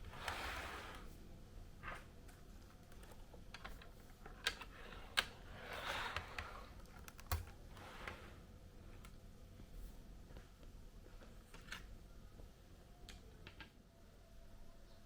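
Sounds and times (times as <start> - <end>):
soft rustling of plastic parts: 0.0 - 15.0
plastic parts clicking: 2.6 - 7.6.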